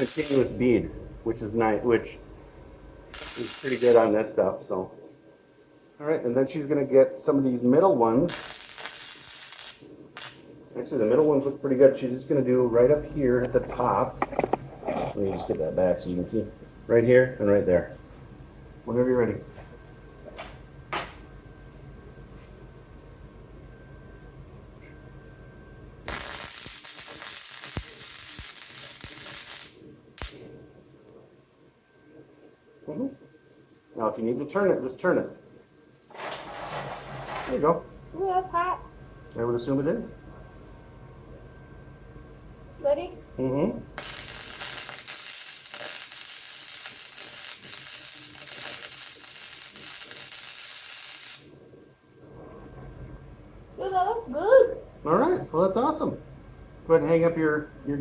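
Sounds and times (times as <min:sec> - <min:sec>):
welder zap: 0:00.0 - 0:00.6, 0:03.1 - 0:04.2, 0:08.3 - 0:10.5, 0:26.1 - 0:30.5, 0:44.0 - 0:51.6
welder crackling hiss: 0:00.0 - 0:00.7, 0:03.1 - 0:04.4, 0:08.3 - 0:10.5, 0:26.1 - 0:30.5, 0:44.0 - 0:51.6.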